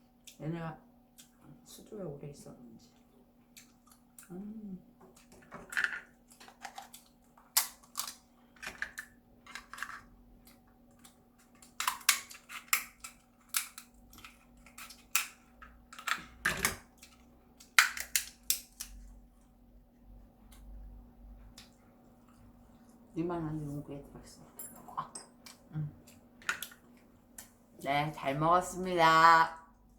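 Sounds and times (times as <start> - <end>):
lobster shell cracking: 5.2 - 10.0, 11.0 - 19.0.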